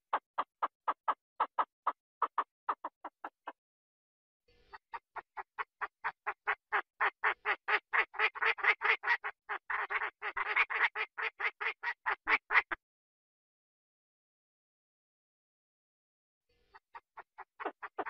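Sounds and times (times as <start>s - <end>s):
rapid quacking calls: 0.0s - 3.6s, 4.7s - 12.8s, 16.9s - 18.0s.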